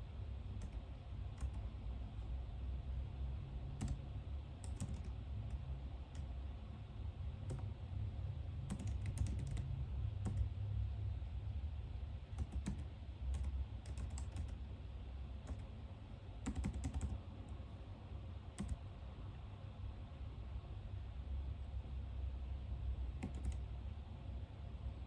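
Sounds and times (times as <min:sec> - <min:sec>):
steady low hum: 0:00.0 - 0:25.0
computer keyboard typing: 0:00.5 - 0:01.8, 0:03.8 - 0:06.4, 0:07.4 - 0:07.8, 0:08.6 - 0:10.6, 0:12.3 - 0:14.7, 0:15.4 - 0:15.8, 0:16.4 - 0:17.6, 0:18.5 - 0:18.9, 0:23.2 - 0:23.7.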